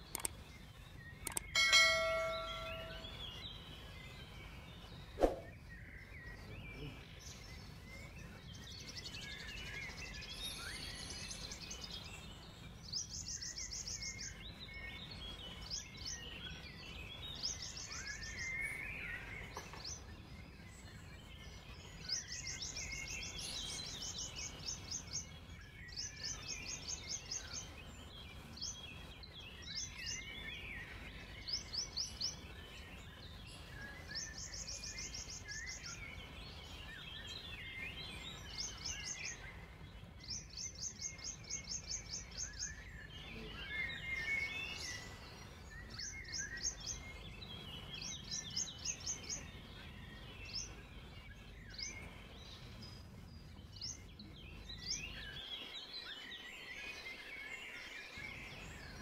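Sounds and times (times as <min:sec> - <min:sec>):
birds twittering and chirping: 0:00.0 - 0:59.0
bird rapid high trill: 0:01.6 - 0:03.2.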